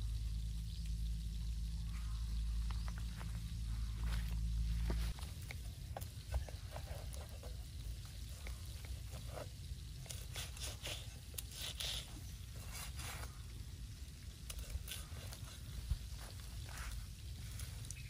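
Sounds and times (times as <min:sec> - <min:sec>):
low rumble: 0:00.0 - 0:05.9
blade scraping roast chicken skin: 0:06.2 - 0:13.6, 0:14.4 - 0:18.0.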